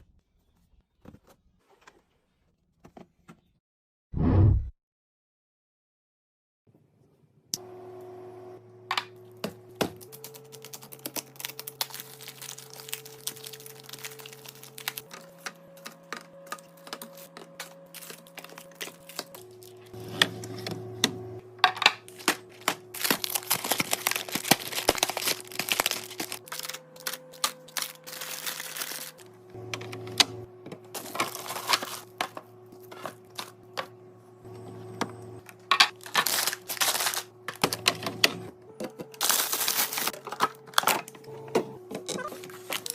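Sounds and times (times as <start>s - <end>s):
plastic crinkling: 10.0s - 20.0s, 22.1s - 29.2s, 31.0s - 32.2s, 36.0s - 37.8s, 39.2s - 41.0s, 42.1s - 42.9s.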